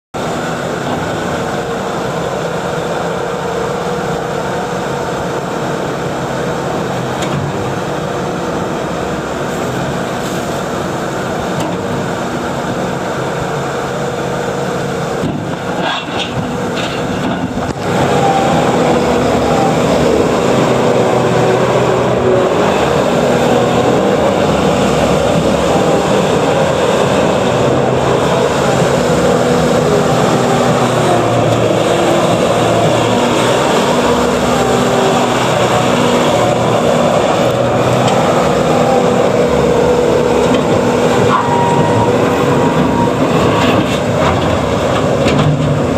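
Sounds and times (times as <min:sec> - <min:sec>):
diesel engine running: 0:00.1 - 0:45.9.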